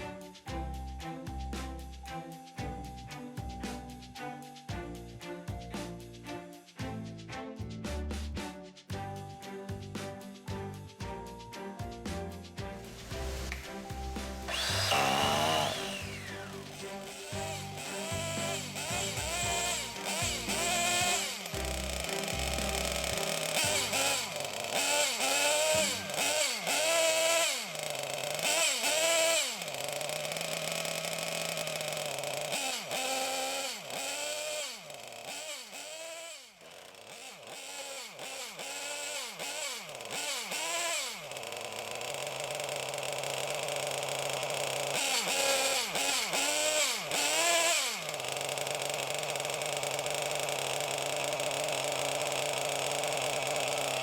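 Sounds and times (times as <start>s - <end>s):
small engine revving: 12.1s - 54.0s.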